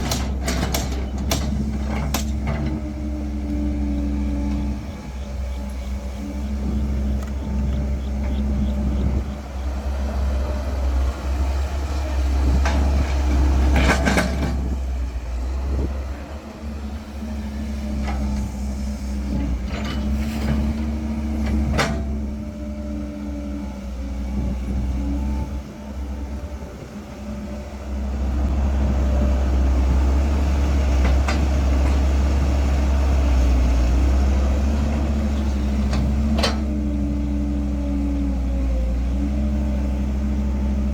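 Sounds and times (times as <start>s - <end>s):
sharp metal knocks and clanks: 0.0s - 2.7s
excavator diesel engine: 0.0s - 40.9s.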